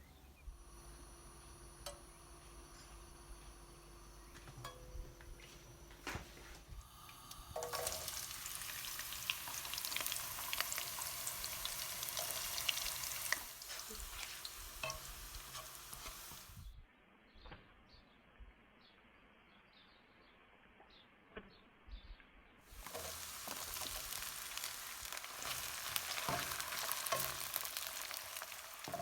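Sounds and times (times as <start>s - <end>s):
food sizzling in hot oil: 6.8s - 16.7s, 22.7s - 29.0s.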